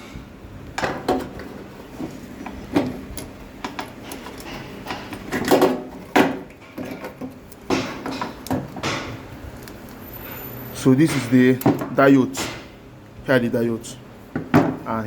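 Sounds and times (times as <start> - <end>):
hard objects knocking and clattering: 0.7 - 9.2, 14.3 - 14.8.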